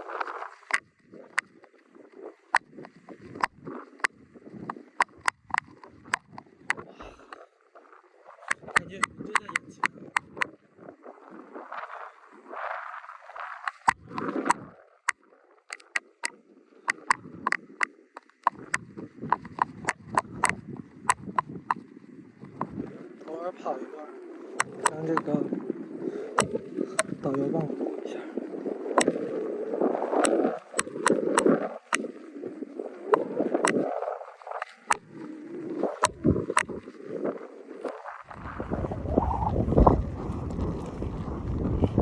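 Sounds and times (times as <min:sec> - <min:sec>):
wind on microphone: 0:00.0 - 0:42.0
horse hooves clip-clopping: 0:37.9 - 0:42.0.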